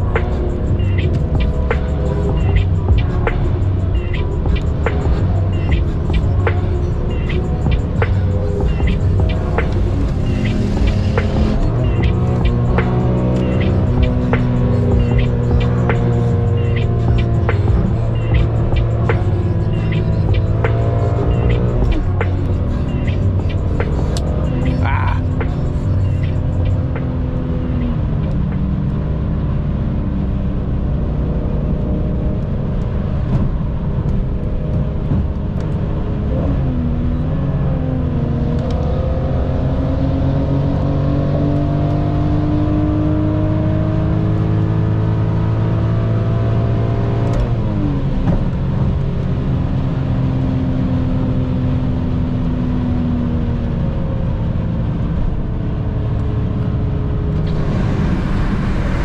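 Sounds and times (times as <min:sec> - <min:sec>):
car engine under load: 0:54.2 - 0:59.0.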